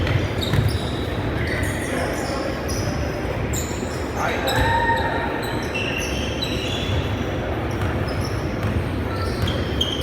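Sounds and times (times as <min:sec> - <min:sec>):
basketball bouncing: 0:00.0 - 0:00.8
sneakers squeaking on court: 0:00.0 - 0:03.0, 0:05.4 - 0:10.0.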